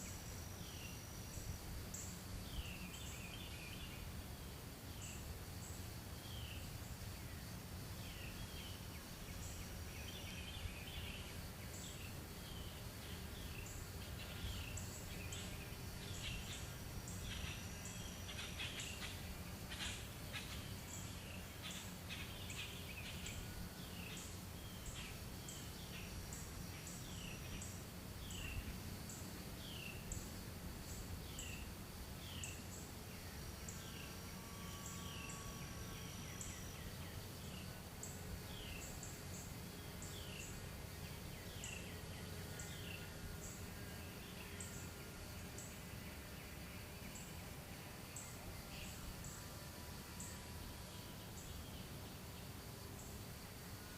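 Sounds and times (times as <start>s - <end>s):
faint steady high tone: 32.5s - 39.6s.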